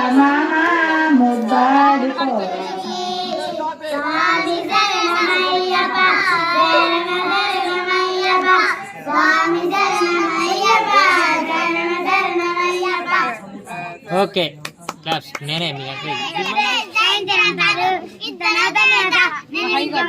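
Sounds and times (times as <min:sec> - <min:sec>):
child singing: 0:00.0 - 0:13.4, 0:16.0 - 0:20.0.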